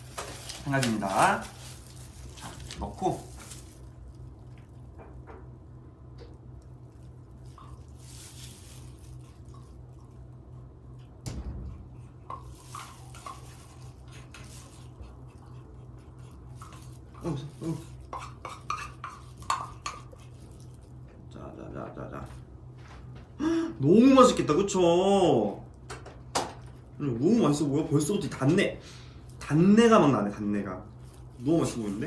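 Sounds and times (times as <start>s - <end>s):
steady low hum: 0.0s - 32.0s
utensils clinking against bowl: 16.6s - 20.4s.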